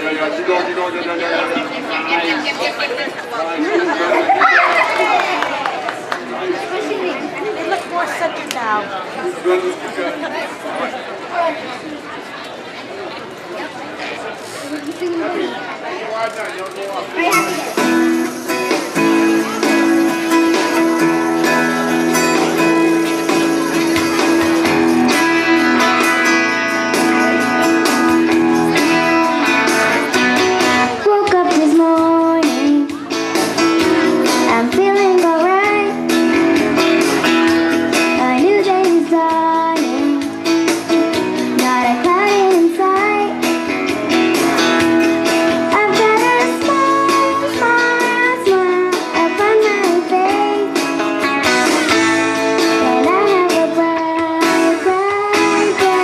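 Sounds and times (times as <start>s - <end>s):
strummed guitar: 16.4s - 56.0s.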